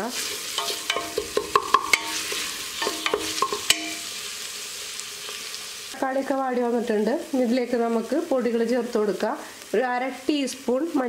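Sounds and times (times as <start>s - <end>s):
vegetables sizzling in oil: 0.0s - 11.0s
steel pot ringing: 0.4s - 4.2s
wooden spatula knocking on pot: 0.6s - 4.0s.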